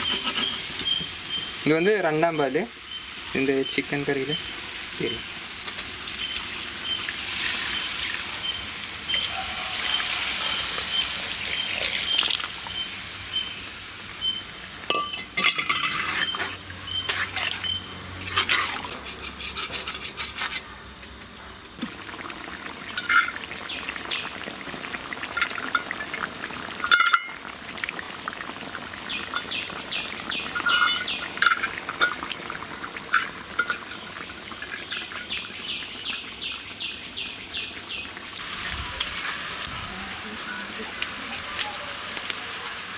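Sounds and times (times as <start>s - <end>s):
ladle clicks and scrapes on pot: 0.0s - 1.1s, 14.9s - 20.7s
ladle stirring in a pot: 0.0s - 1.5s, 14.9s - 20.7s
curry hissing in a pan: 0.0s - 19.1s, 21.9s - 42.9s.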